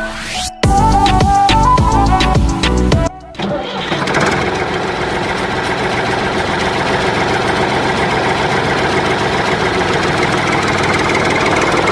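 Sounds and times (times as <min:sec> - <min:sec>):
small tractor engine idling: 0:03.4 - 0:11.9.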